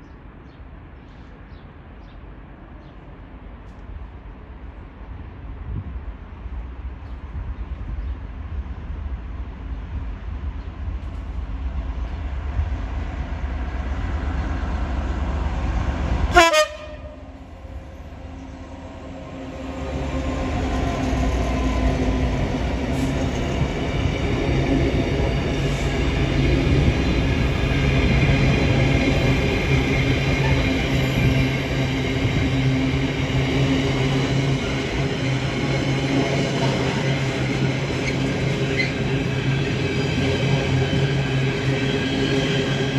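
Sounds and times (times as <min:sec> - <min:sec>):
diesel locomotive rumble: 0:10.9 - 0:42.9
train horn toot: 0:16.3 - 0:17.4.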